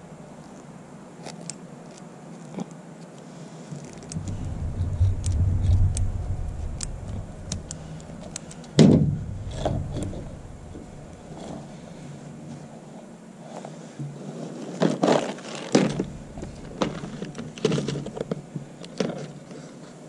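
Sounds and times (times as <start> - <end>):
low rumble: 4.0 - 12.0, 16.1 - 17.2
loud thump: 4.1 - 11.6.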